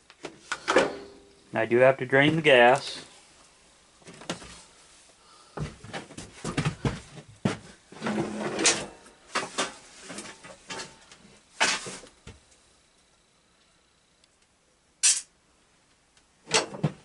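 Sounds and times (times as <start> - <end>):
tools and metal parts clattering: 8.0 - 12.0.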